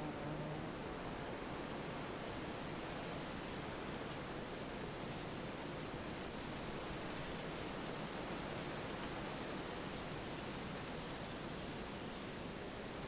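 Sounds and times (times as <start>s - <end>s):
wind rustling through trees: 0.0s - 13.0s.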